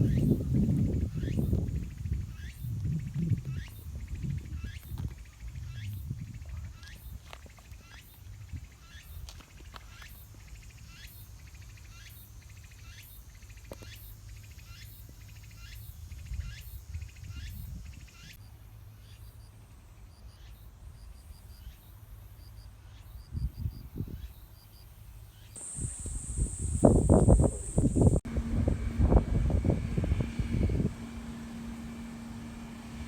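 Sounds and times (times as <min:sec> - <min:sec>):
wind rumble: 0:00.0 - 0:06.8, 0:25.6 - 0:31.4.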